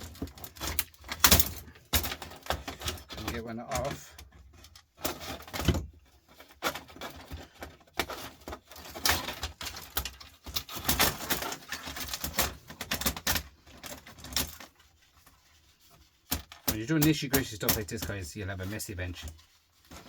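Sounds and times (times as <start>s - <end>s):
metal parts rattling: 0.0s - 14.8s.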